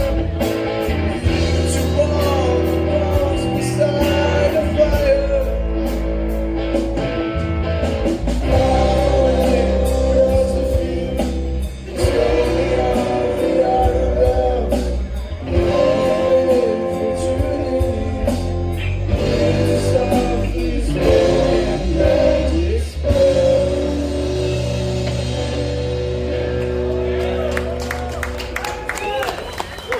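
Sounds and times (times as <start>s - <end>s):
steady drum beat: 0.0s - 27.0s
rock band playing: 0.0s - 29.9s
person singing: 1.2s - 6.0s, 8.4s - 25.6s.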